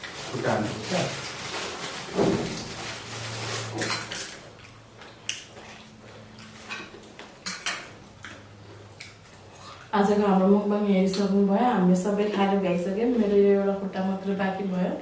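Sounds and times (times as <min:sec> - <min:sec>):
cutlery clinking against dishes: 0:06.7 - 0:08.0.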